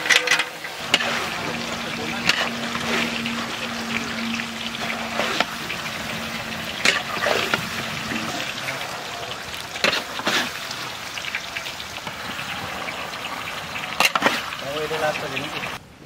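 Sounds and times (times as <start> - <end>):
metal spatula scraping a pan: 0.0 - 8.8, 9.7 - 11.3, 13.9 - 14.6
food sizzling in a pan: 0.5 - 15.8.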